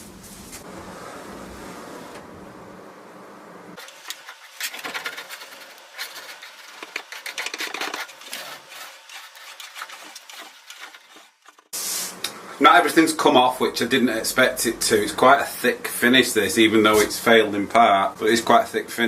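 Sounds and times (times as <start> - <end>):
steady low hum: 0.0 - 7.4
scraper scratching wood: 3.8 - 12.0.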